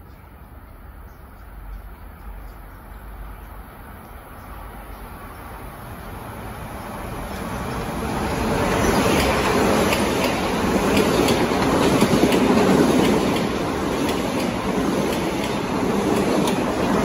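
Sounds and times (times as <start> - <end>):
electric train rumbling past: 0.0 - 17.0
wheels clicking over rail joints: 8.4 - 17.0.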